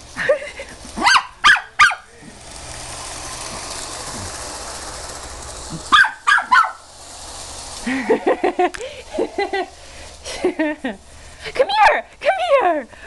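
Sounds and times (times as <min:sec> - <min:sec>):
toy train running: 0:00.0 - 0:13.0
puppy barking: 0:01.0 - 0:02.1, 0:05.9 - 0:06.8.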